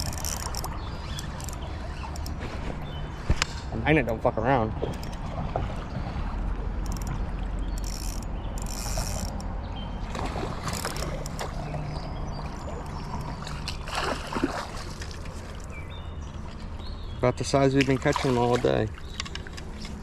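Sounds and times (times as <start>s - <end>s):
fishing reel whirring: 0.0s - 2.4s, 6.8s - 7.1s, 7.7s - 9.4s
creek water running: 0.0s - 20.0s.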